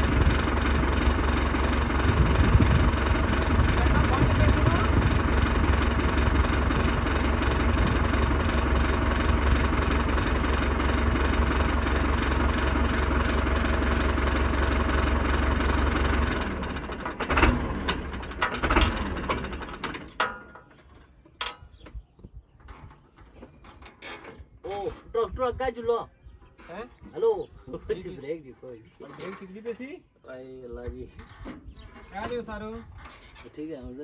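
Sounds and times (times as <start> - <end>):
tractor engine running: 0.0 - 24.5.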